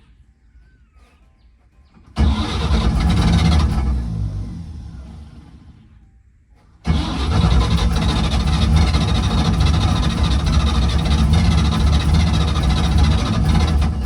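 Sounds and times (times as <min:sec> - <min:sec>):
engine starting up: 0:02.0 - 0:06.0, 0:06.6 - 0:14.0
engine running: 0:02.2 - 0:06.0, 0:06.8 - 0:14.0.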